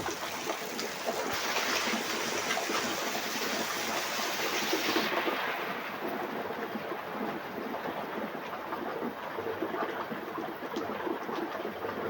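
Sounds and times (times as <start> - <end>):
steady rain falling: 0.0 - 8.2.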